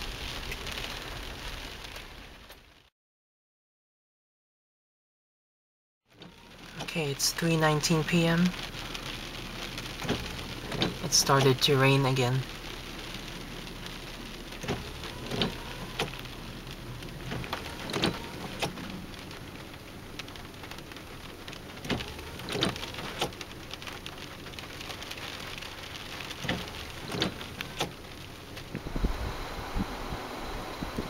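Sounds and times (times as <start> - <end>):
raindrops tapping on windshield: 0.0 - 2.9, 6.1 - 29.5
steady rain hiss: 0.0 - 2.9, 6.1 - 31.0
low rumble: 26.3 - 31.0.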